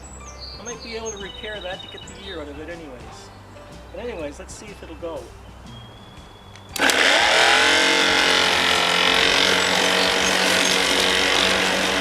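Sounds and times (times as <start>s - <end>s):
electric lawnmower running: 6.8s - 12.0s.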